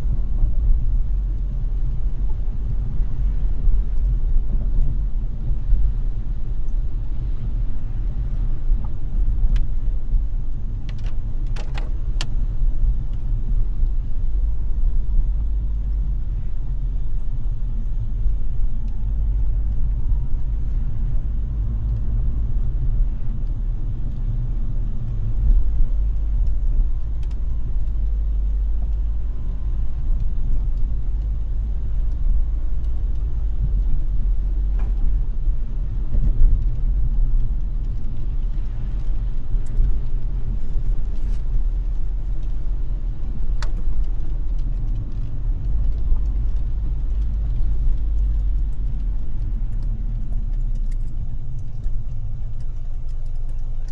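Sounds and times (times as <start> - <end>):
car driving on wet road: 0.0 - 53.9
sharp clicks: 47.1 - 53.9.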